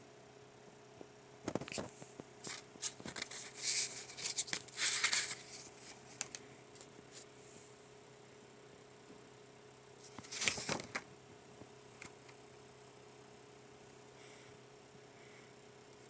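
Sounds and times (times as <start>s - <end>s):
faint steady hum: 0.0s - 16.0s
paper pages rustling: 1.5s - 7.3s, 10.0s - 11.1s.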